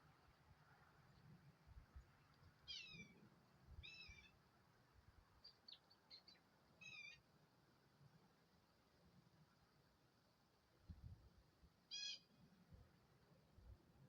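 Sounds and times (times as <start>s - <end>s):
bird calling faintly: 2.6s - 3.2s, 5.4s - 7.2s, 11.9s - 12.4s.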